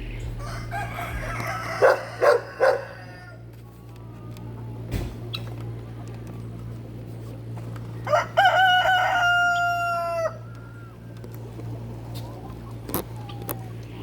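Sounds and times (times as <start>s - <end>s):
steady low hum: 0.0s - 14.0s
rooster crowing: 0.3s - 3.5s, 8.0s - 10.8s.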